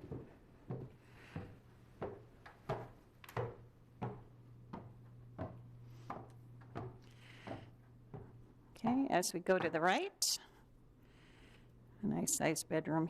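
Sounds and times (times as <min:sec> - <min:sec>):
footsteps climbing stairs: 0:00.0 - 0:08.5, 0:09.5 - 0:10.0.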